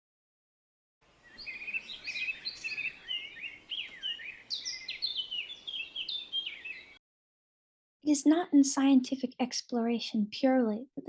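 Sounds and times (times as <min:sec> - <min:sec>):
songbird singing: 0:01.0 - 0:07.0.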